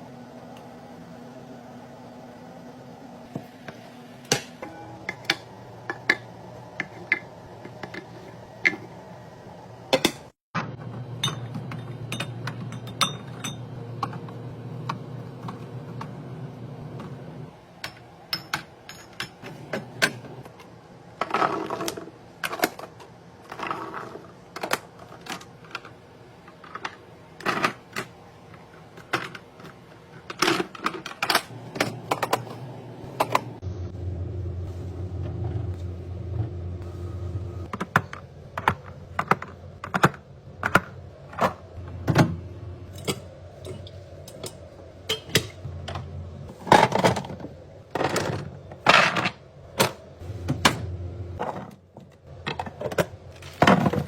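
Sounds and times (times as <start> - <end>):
kitchen items clicking and knocking: 4.3 - 9.0, 9.9 - 16.2, 17.8 - 33.6, 37.6 - 54.0
low hum: 31.5 - 37.8.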